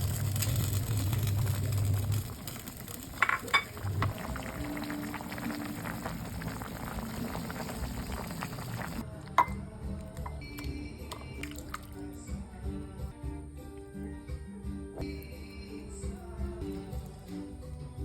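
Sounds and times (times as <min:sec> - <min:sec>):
soup bubbling in a pot: 0:00.0 - 0:09.1.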